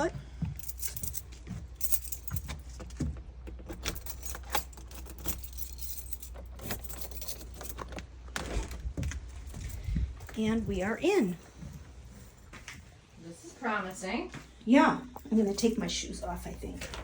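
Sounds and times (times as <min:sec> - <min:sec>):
keys jangling: 0:00.6 - 0:02.9, 0:03.6 - 0:08.0.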